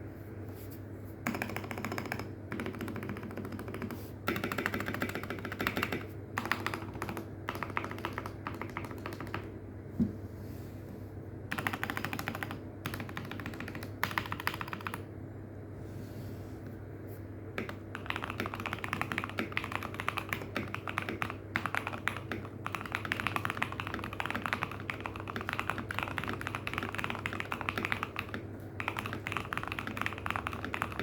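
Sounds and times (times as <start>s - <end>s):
soft mechanical keyboard clacks: 1.3s - 9.5s, 11.5s - 15.1s, 17.6s - 31.0s
steady low microphone hum: 9.4s - 11.6s.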